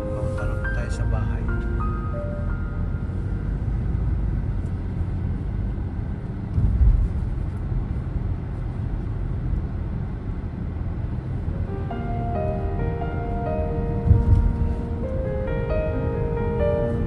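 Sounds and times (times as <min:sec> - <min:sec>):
car engine and road noise: 0:00.0 - 0:17.0
loud thump: 0:06.6 - 0:07.3.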